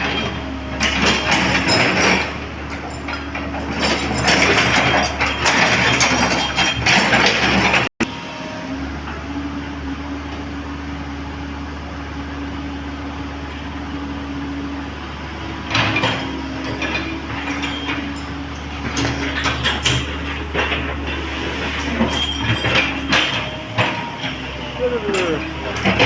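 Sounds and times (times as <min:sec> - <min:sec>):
metallic clanks on steel track: 0:00.0 - 0:07.9, 0:15.6 - 0:26.0
excavator engine running: 0:00.0 - 0:26.0.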